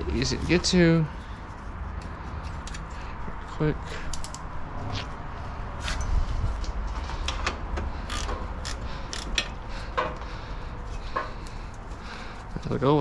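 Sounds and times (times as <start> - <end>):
ratchet wrench clicking: 4.1 - 4.5, 5.8 - 6.1, 8.0 - 9.6.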